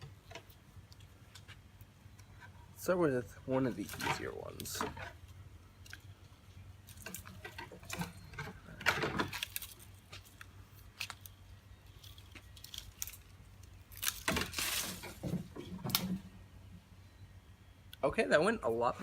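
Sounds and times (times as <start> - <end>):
cutting tool crunching through stick: 9.1 - 15.2.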